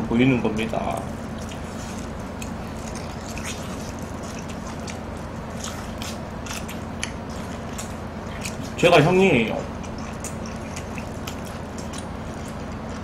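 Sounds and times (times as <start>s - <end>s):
steady low hum: 0.0s - 13.0s
person chewing crunchy food: 0.4s - 13.0s
wet mouth clicks: 9.5s - 13.0s.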